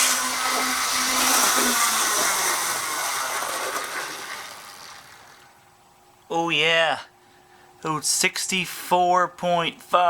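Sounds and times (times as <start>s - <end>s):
model locomotive motor whirring: 0.0s - 5.5s.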